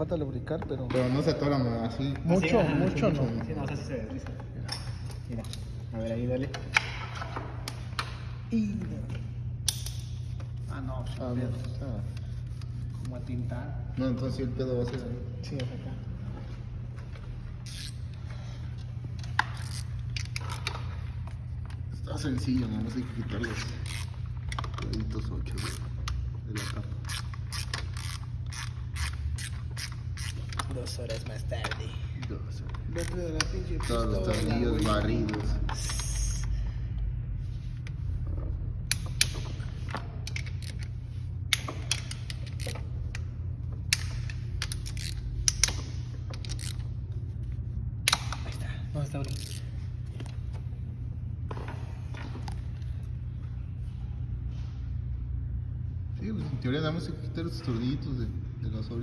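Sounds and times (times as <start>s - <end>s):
steady low hum: 0.0s - 59.0s
tools clicking and scraping: 3.6s - 8.3s, 9.6s - 13.4s, 17.0s - 36.6s, 37.6s - 50.6s
metallic clicks of hand tools: 41.5s - 43.3s, 43.9s - 46.8s.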